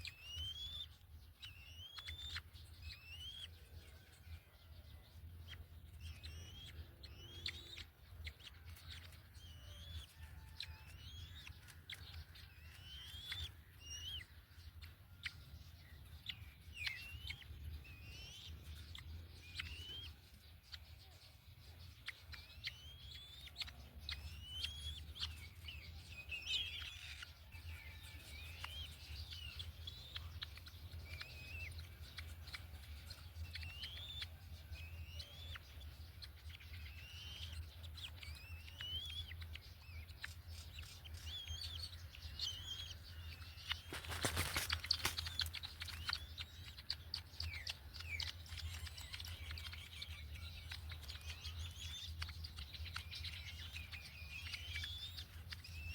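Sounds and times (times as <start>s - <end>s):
birds chirping: 0.0s - 55.9s
rustling: 43.7s - 46.1s.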